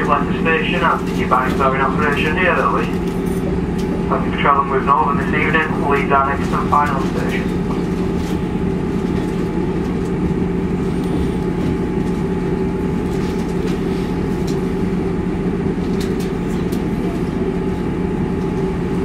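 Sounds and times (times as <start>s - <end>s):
train engine drone: 0.0s - 19.0s
train wheel rumble: 0.0s - 19.0s.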